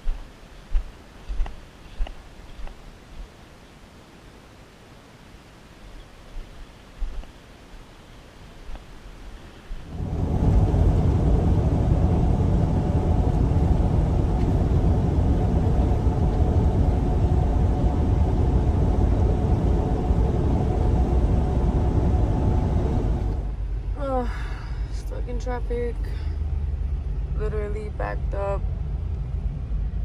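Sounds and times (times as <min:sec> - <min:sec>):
truck engine and road rumble: 0:09.9 - 0:30.0.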